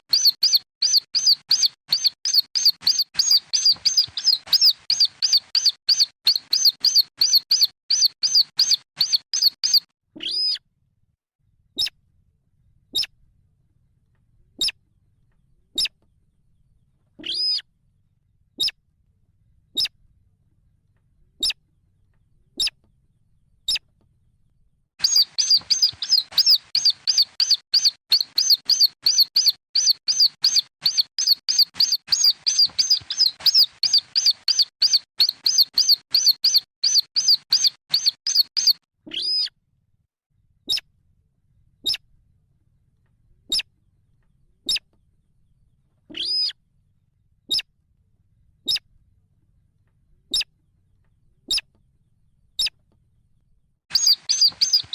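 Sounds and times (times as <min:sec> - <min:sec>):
fast high chirps: 0:00.0 - 0:10.6, 0:25.0 - 0:39.5, 0:53.9 - 0:54.9
rail chicks peeping: 0:00.1 - 0:10.6, 0:25.0 - 0:39.5, 0:53.9 - 0:54.9.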